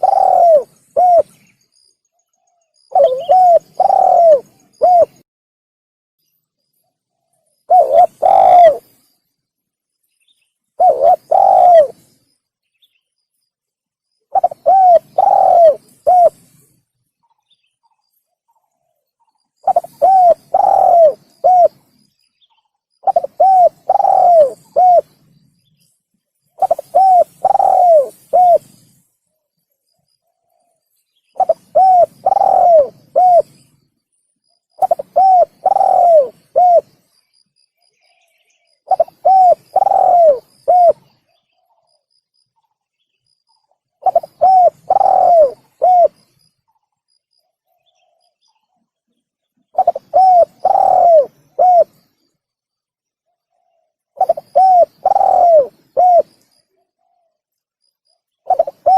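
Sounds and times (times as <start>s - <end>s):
dove cooing: 0.0s - 1.4s, 2.8s - 5.2s, 7.7s - 9.0s, 10.8s - 12.1s, 14.3s - 16.6s, 19.6s - 22.0s, 23.0s - 25.2s, 26.6s - 28.9s, 31.4s - 33.6s, 34.8s - 37.0s, 38.8s - 41.2s, 44.0s - 46.2s, 49.7s - 52.0s, 53.5s - 57.3s, 58.4s - 58.9s.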